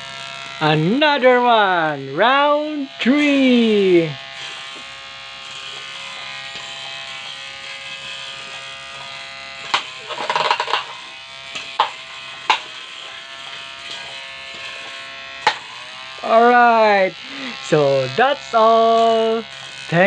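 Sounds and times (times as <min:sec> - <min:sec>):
small electric motors buzzing: 0:00.0 - 0:20.0.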